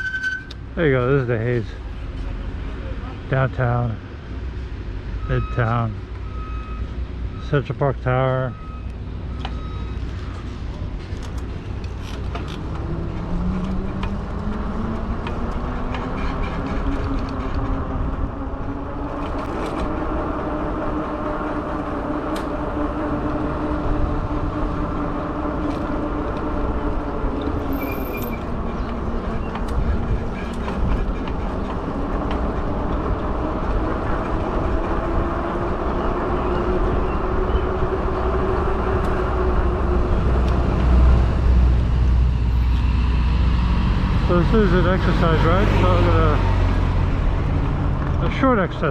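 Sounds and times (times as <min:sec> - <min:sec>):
wind rumble on microphone: 0:10.4 - 0:44.4.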